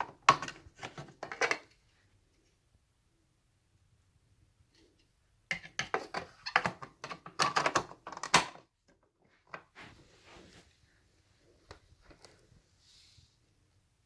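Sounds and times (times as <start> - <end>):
rustling and scraping: 9.2 - 13.5.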